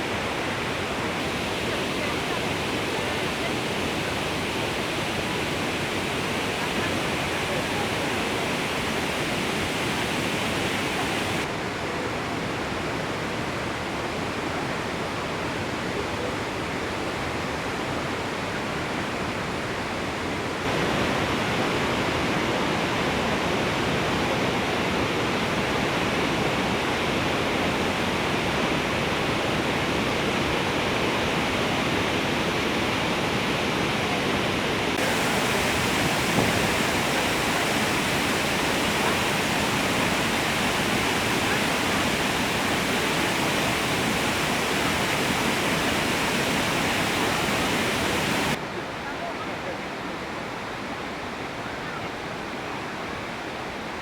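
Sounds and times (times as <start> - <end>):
waterfall rushing: 0.0 - 11.5, 20.6 - 48.6.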